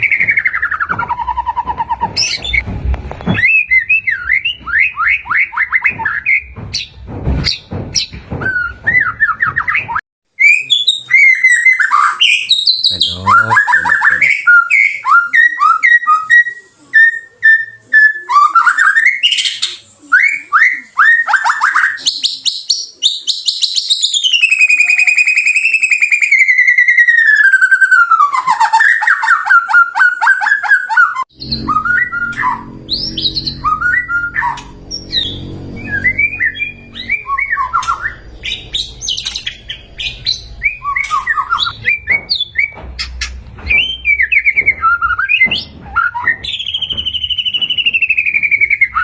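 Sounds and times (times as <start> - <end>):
bird singing whistles and trills: 3.4 - 6.9, 8.4 - 49.0
low hum: 31.3 - 48.0.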